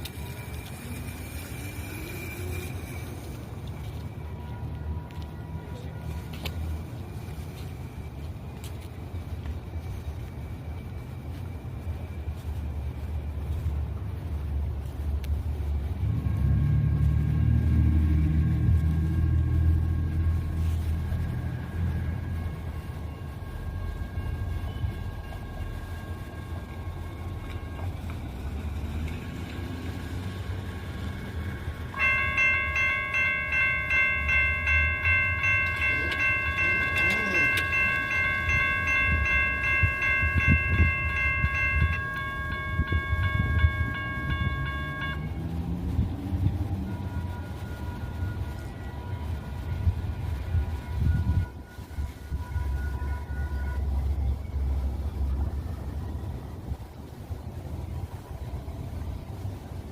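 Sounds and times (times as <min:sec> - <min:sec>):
train rumbling by: 0:00.0 - 0:59.9
electronic warning bell ringing: 0:16.5 - 0:45.8.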